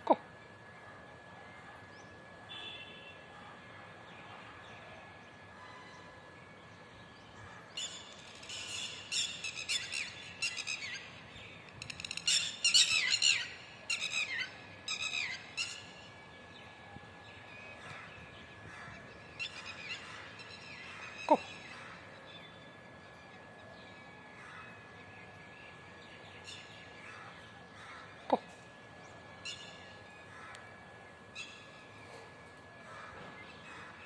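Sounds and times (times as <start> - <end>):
birds chirping: 17.4 - 34.0.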